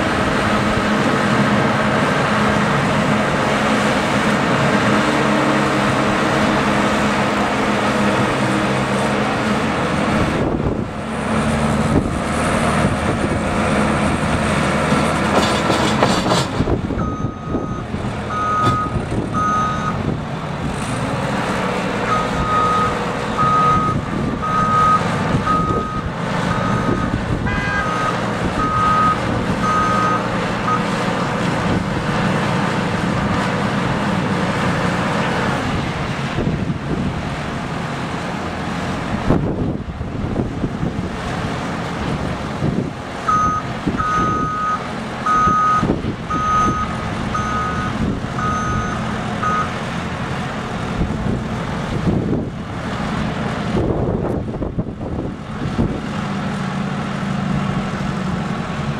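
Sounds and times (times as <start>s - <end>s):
heavy vehicle engine running: 0.0s - 58.9s
reversing alarm beeping: 17.0s - 20.0s, 22.1s - 30.9s, 43.3s - 49.8s.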